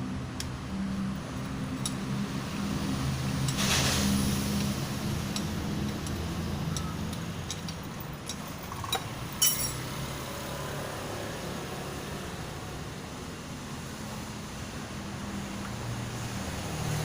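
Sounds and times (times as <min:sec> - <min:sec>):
metallic clinks of tools and parts: 0:05.3 - 0:09.9.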